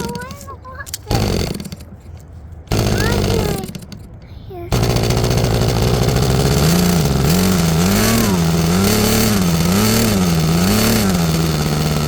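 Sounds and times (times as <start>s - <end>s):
model airplane engine running: 1.0s - 1.9s, 2.7s - 4.0s, 4.7s - 12.0s.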